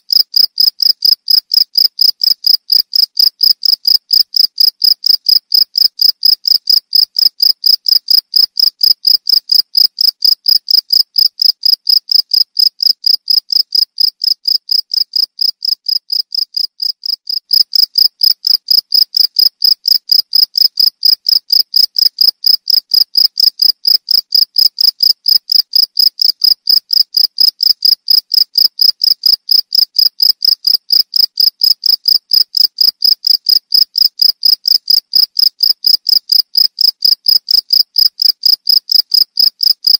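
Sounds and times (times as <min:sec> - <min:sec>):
cricket chirping: 0:00.1 - 0:39.9.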